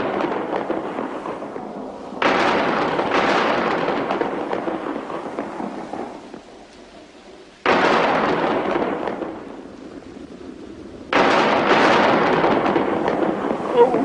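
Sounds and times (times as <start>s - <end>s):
cartoon thunder claps: 11.1s - 14.0s.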